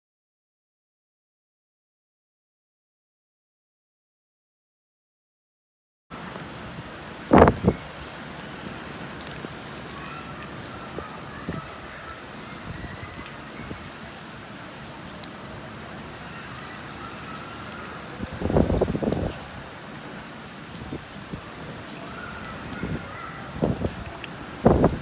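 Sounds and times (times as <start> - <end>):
low buffeting noise: 6.1 - 9.9
rain falling on leaves: 6.1 - 25.0.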